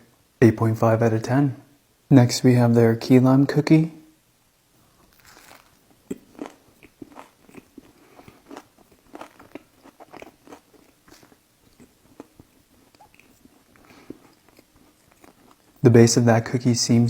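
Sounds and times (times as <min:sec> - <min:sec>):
cookie crunching while chewing: 0:05.0 - 0:15.8.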